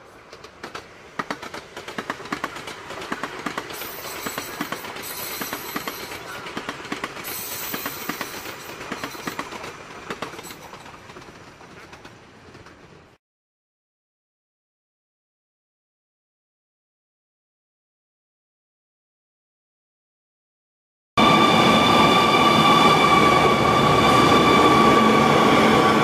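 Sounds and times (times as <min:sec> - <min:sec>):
train rushing on rails: 0:00.0 - 0:13.2, 0:21.2 - 0:26.0
wheels clicking over rail joints: 0:00.1 - 0:13.2.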